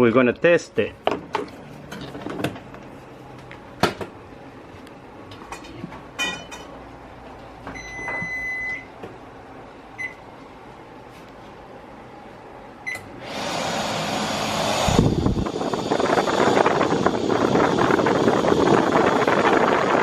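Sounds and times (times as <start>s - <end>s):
microwave control panel beeping: 7.7s - 9.0s, 10.0s - 10.3s, 12.8s - 13.2s
exhaust fan rushing air: 8.4s - 20.0s.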